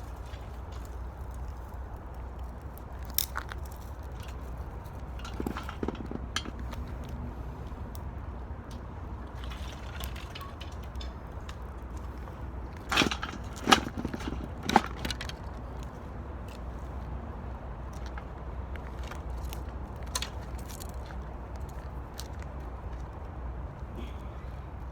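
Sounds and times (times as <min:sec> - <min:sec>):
wood fire crackling in metal can: 0:00.0 - 0:07.2, 0:08.7 - 0:15.8.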